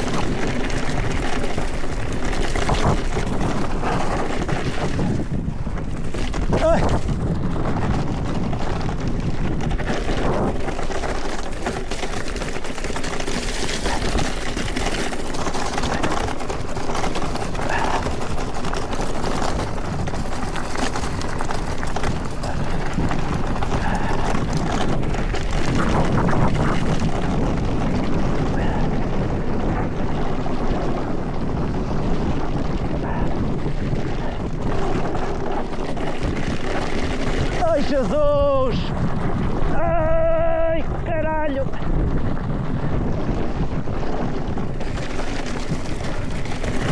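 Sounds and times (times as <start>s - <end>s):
bike chain and frame rattling: 0.0s - 46.9s
tyres rolling over dirt and stones: 0.0s - 46.9s
wind rushing over microphone: 0.0s - 46.9s.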